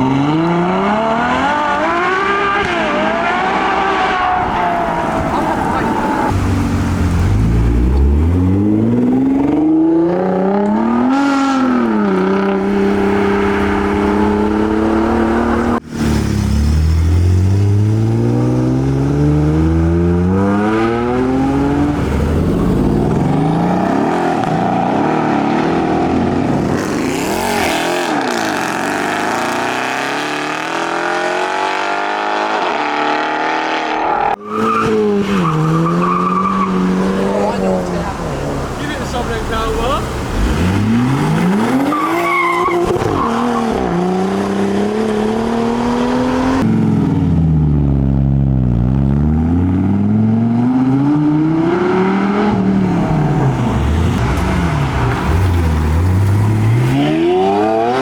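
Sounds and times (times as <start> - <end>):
car engines accelerating hard: 0.0 - 58.0
car passing by: 52.6 - 58.0.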